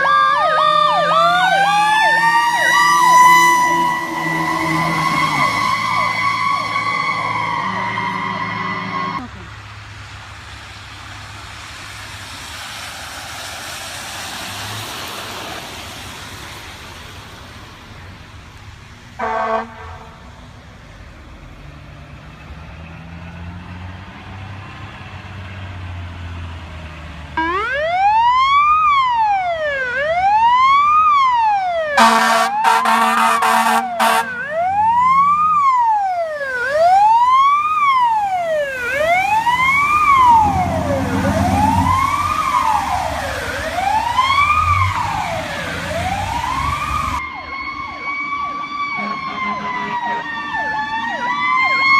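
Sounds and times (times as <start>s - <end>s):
fire truck siren wailing: 0.0s - 9.5s, 19.2s - 20.7s, 21.3s - 51.9s
traffic and engine noise: 0.0s - 51.9s
air horn blasts: 19.2s - 20.3s, 32.0s - 34.4s, 49.0s - 50.2s
short horn blast: 32.0s - 34.3s.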